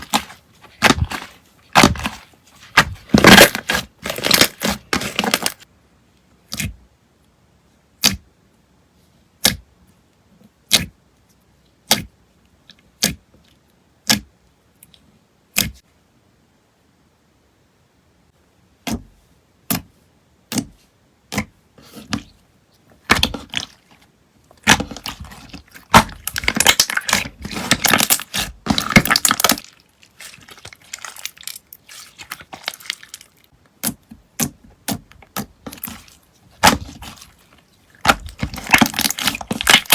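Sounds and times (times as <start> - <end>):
slime squishing with crackling pops: 0.0 - 5.6, 8.0 - 8.3, 10.5 - 11.0, 23.0 - 39.9.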